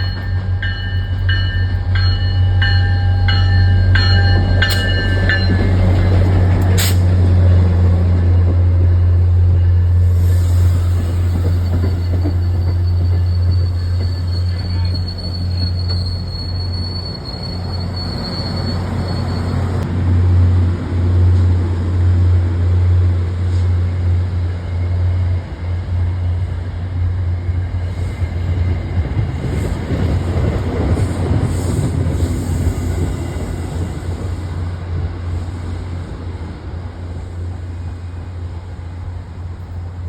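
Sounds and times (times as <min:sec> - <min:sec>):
diesel locomotive drone: 0:00.0 - 0:40.0
train cars rumbling: 0:00.0 - 0:40.0
thin high squeal: 0:09.6 - 0:19.8.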